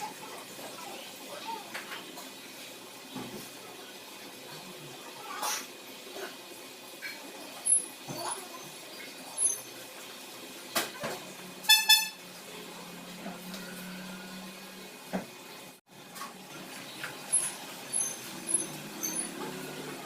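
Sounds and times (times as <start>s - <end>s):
vehicle horn beeps: 11.6s - 12.3s.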